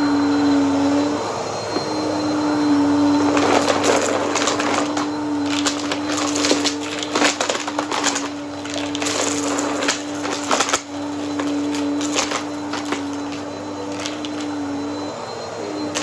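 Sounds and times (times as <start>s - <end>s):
vacuum cleaner motor hum: 0.0s - 16.0s
debris crackling in vacuum: 3.2s - 14.7s.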